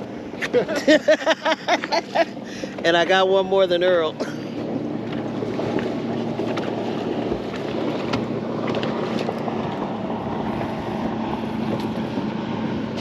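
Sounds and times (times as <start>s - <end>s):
boat motor hum: 0.0s - 13.0s
wind on microphone: 4.6s - 13.0s.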